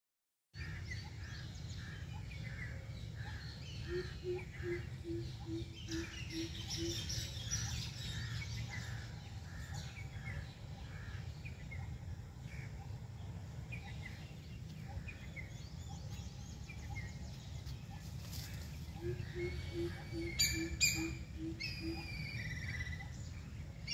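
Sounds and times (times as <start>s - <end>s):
birds chirping: 0.6s - 23.9s
low background noise: 0.6s - 23.9s
low hoots: 18.9s - 22.8s.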